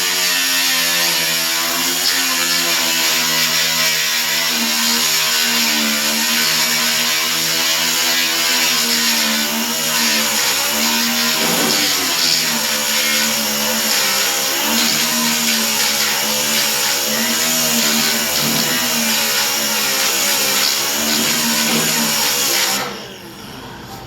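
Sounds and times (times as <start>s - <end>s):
electric grinder grinding metal: 0.0s - 23.2s.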